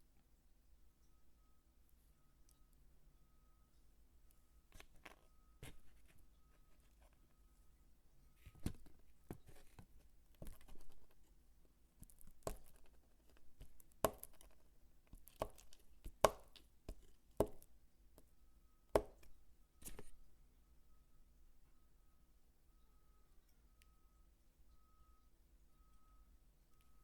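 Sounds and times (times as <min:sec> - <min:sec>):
knife chopping soap: 0:08.5 - 0:11.1, 0:12.0 - 0:17.7, 0:19.0 - 0:20.2.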